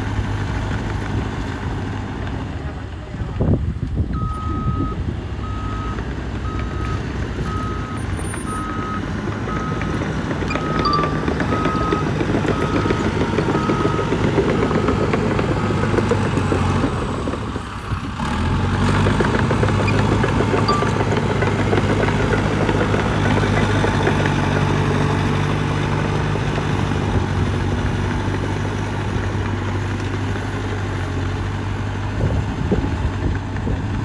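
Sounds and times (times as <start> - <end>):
heavy machinery diesel engine: 0.0 - 34.0
back-up alarm beeping: 6.6 - 15.0, 20.6 - 21.4.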